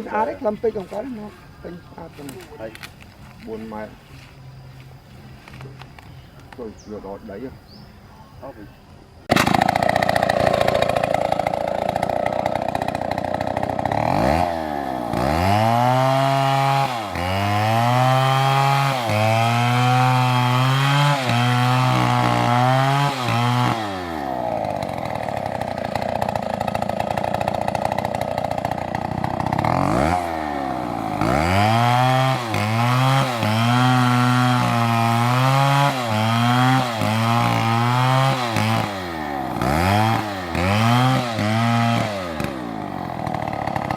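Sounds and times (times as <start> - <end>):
chainsaw cutting wood: 9.3 - 43.9.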